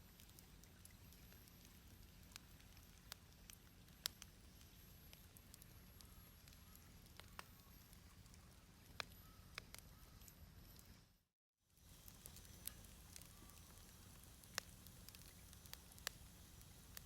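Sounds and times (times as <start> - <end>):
fire crackling and popping: 0.0 - 10.9, 11.8 - 17.0.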